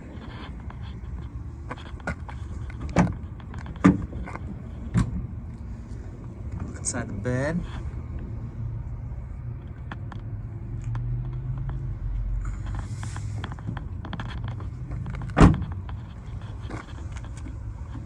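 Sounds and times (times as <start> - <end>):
tailgate clunk: 2.8 - 5.3, 15.2 - 15.7.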